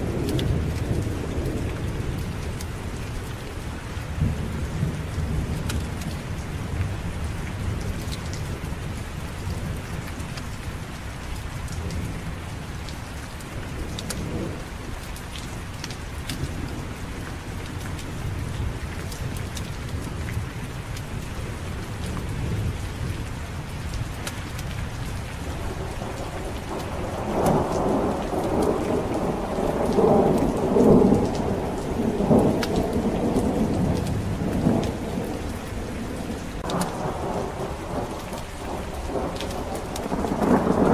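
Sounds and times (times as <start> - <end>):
heavy rain: 0.0 - 40.9
thunder rumbling: 13.6 - 15.0, 16.2 - 40.9.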